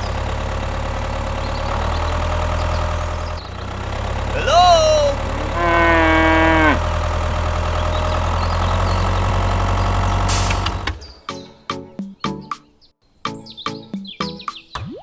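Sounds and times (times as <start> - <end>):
engine idling hum: 0.0 - 11.3
drawn-out falling call: 4.0 - 9.7.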